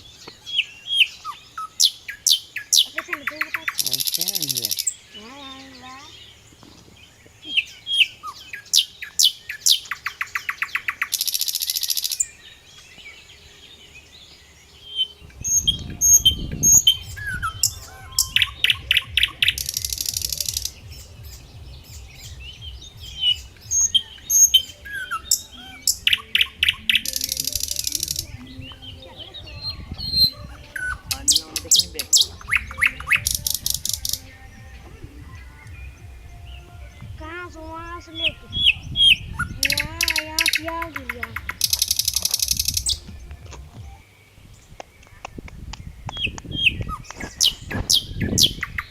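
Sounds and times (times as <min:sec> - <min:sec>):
songbird singing: 0:00.0 - 0:48.9
low rumble: 0:20.2 - 0:23.8.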